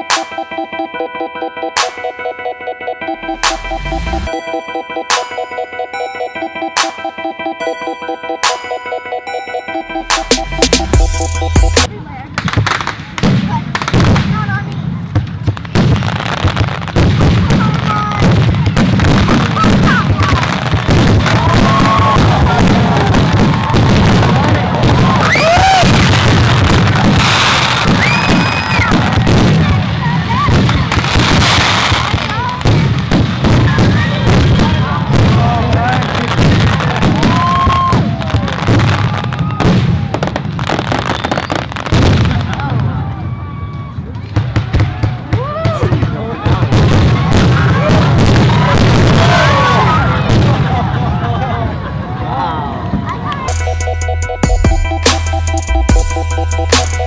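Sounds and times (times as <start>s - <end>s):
fireworks bangs and crackles: 0.0s - 0.8s, 3.2s - 7.1s, 10.0s - 53.7s
low rumble: 3.2s - 4.4s
falling firework whistle: 24.9s - 29.3s, 36.8s - 42.0s.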